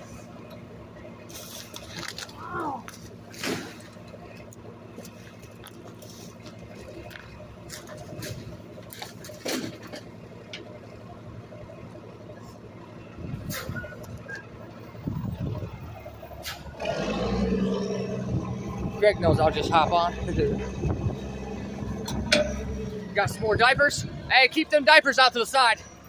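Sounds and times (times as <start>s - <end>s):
garbage truck engine running: 0.0s - 26.0s
knocks and clatter: 7.0s - 10.7s, 20.6s - 23.1s.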